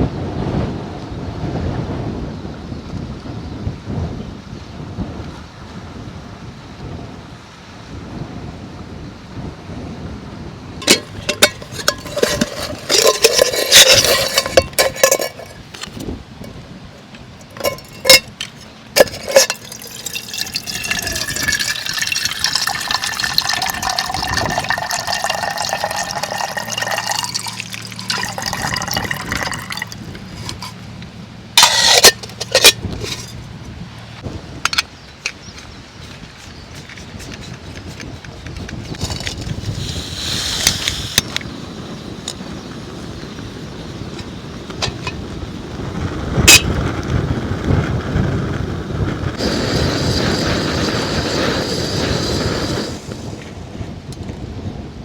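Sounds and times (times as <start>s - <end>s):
clinks and knocks: 10.8s - 16.6s, 17.4s - 30.8s, 31.6s - 33.4s
liquid pouring into container: 19.0s - 30.7s.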